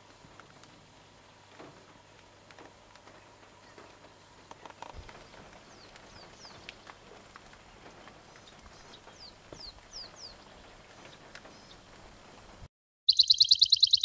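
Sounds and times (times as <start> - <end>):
bird falling whistles: 13.1 - 14.0.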